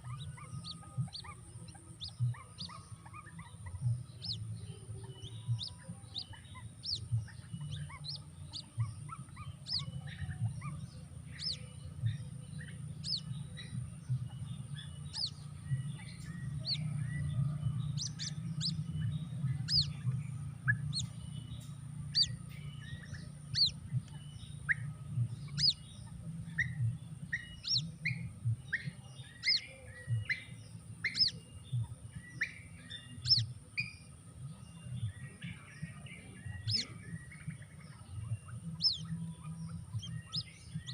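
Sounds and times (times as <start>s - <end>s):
birds peeping: 0.0s - 40.9s
low steady hum: 0.0s - 40.9s.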